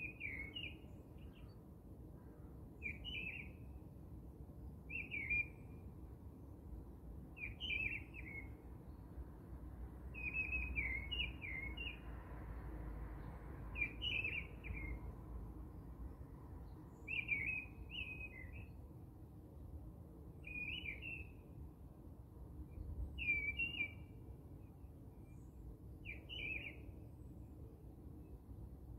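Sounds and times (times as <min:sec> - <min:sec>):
songbird chirping: 0:00.0 - 0:01.6, 0:02.8 - 0:03.7, 0:04.9 - 0:05.7, 0:07.4 - 0:09.1, 0:10.2 - 0:12.1, 0:13.2 - 0:15.2, 0:16.5 - 0:18.8, 0:20.4 - 0:21.4, 0:23.1 - 0:24.1, 0:24.8 - 0:27.0.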